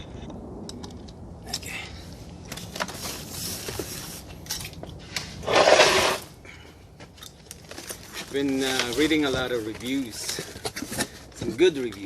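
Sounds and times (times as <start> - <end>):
loud scraping rustle: 5.0 - 6.3.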